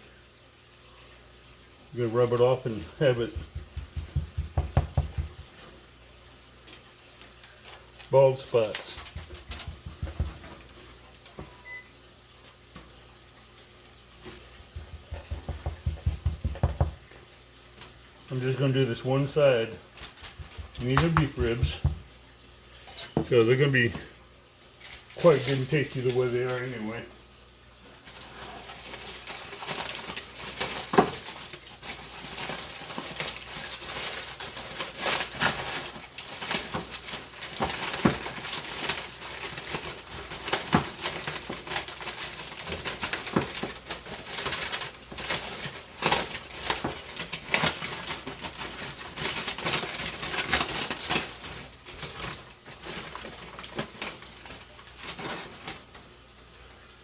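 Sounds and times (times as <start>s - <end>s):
rustle of handling: 0.8s - 56.5s
hands patting meat: 3.2s - 5.7s, 8.9s - 10.6s, 14.6s - 17.0s, 20.2s - 22.1s.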